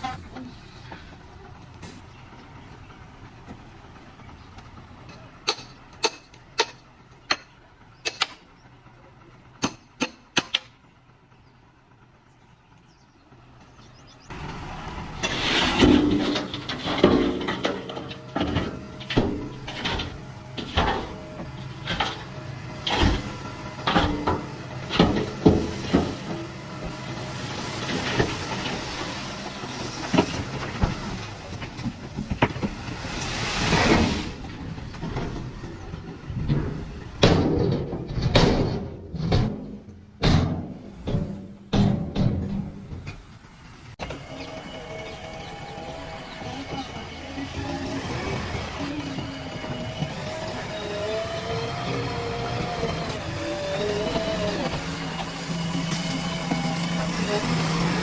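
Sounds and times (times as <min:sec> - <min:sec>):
diesel engine running: 0:00.0 - 0:58.0
clanking knocks and clatter: 0:14.3 - 0:44.2.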